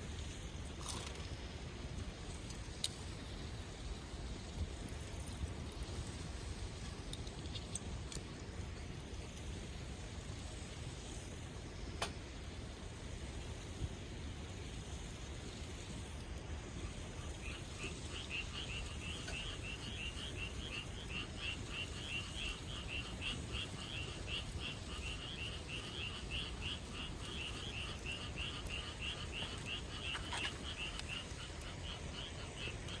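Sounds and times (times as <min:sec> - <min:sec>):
frogs croaking in chorus: 0:16.8 - 0:33.0.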